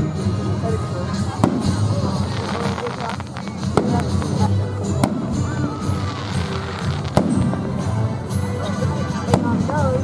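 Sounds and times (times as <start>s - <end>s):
low rumble of fireworks: 0.0s - 10.0s
firework bangs: 1.4s - 8.2s.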